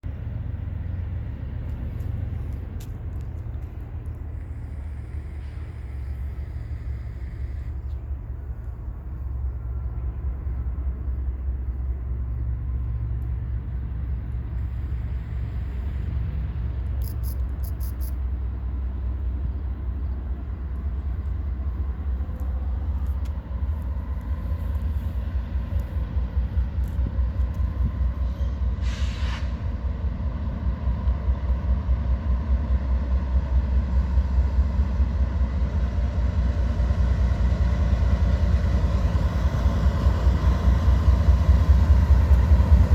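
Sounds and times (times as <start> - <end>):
diesel locomotive rumbling: 0.0 - 42.9
air hiss: 28.7 - 29.7.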